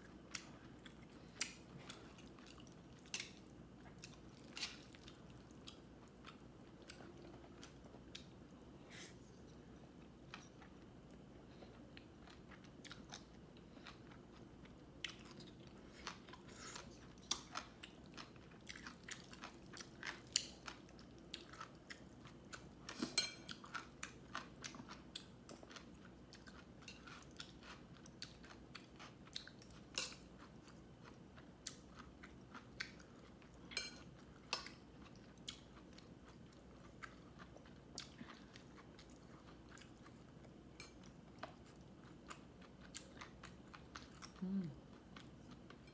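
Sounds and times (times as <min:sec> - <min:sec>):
person chewing crunchy food: 0:09.9 - 0:45.8.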